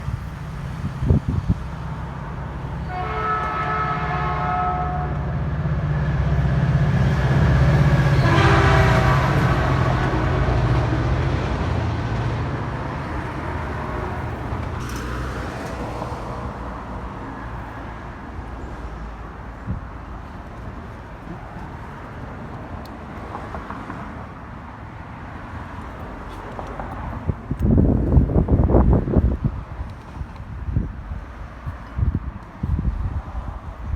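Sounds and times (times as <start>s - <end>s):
train rumble: 0.0s - 33.9s
train horn blasts: 2.8s - 5.5s, 7.6s - 11.2s.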